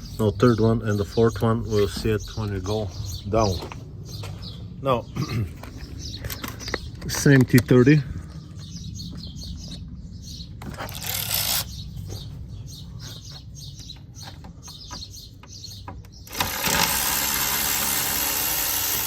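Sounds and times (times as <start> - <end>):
power tool running: 10.8 - 11.7, 16.2 - 19.0.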